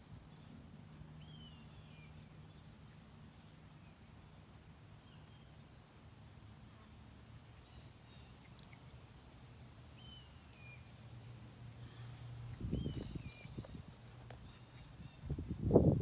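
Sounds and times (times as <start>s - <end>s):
distant bird calls: 11.8s - 15.4s.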